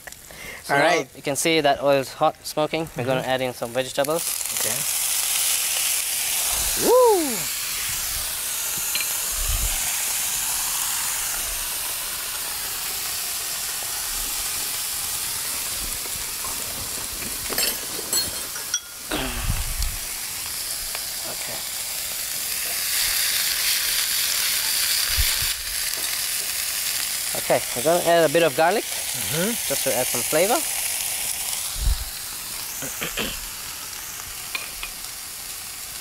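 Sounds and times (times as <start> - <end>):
food sizzling in frying pans: 0.0 - 36.0.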